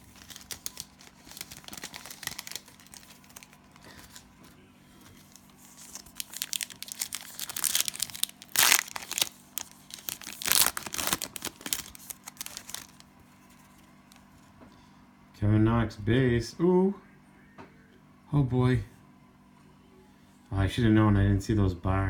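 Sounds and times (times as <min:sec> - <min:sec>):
cellophane wrapper crinkling: 0:00.0 - 0:14.3.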